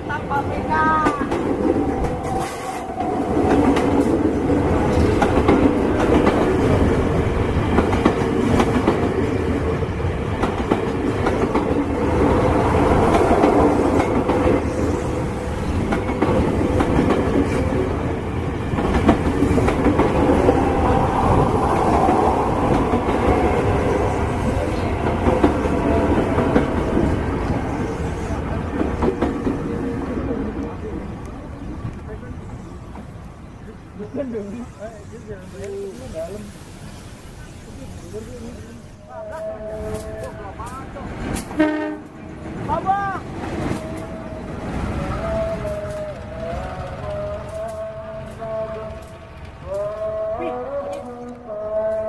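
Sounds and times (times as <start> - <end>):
train cars rumbling: 0.0 - 52.0
wheels clacking over rail joints: 15.5 - 27.7.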